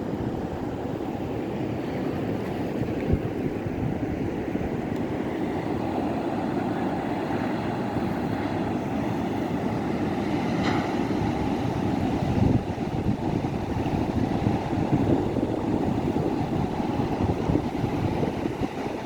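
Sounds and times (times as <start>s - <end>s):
ocean surf: 0.0s - 19.0s
wind on microphone: 1.8s - 5.4s, 7.8s - 19.0s.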